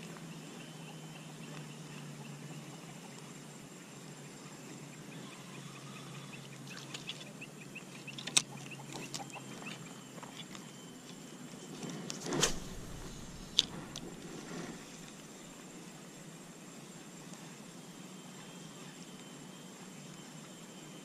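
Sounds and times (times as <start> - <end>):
brief thump: 12.3 - 14.2.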